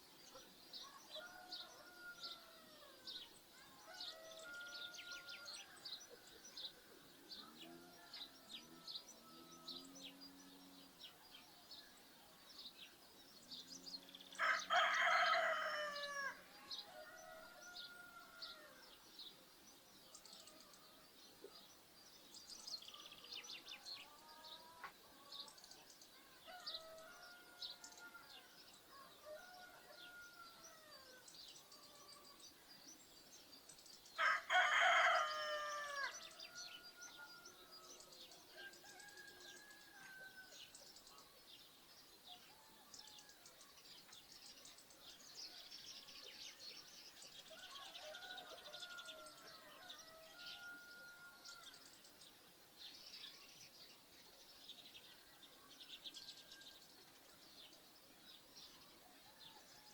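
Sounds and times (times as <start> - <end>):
small birds chirping: 3.1 - 59.9
rooster crowing: 14.4 - 18.8, 34.2 - 37.6, 47.5 - 51.7.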